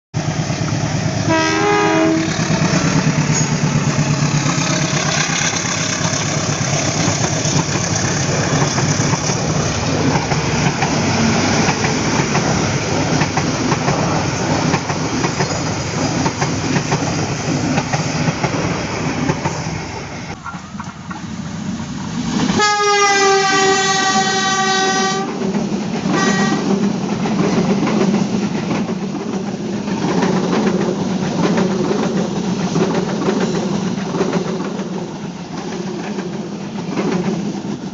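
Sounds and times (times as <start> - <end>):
train wheels rumbling on rails: 0.2 - 37.9
train horn: 1.2 - 3.5, 22.6 - 25.4, 26.1 - 26.7.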